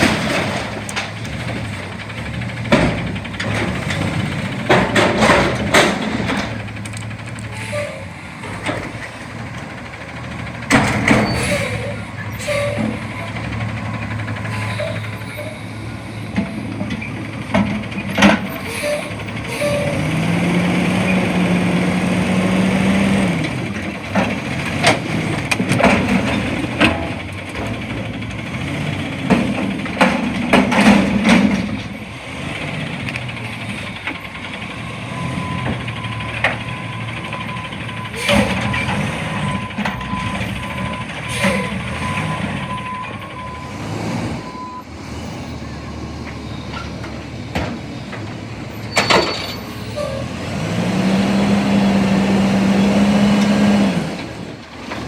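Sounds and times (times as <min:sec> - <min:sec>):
metal clanks and bangs: 0:00.0 - 0:20.5, 0:22.9 - 0:43.2
garbage truck engine revving: 0:00.0 - 0:55.0.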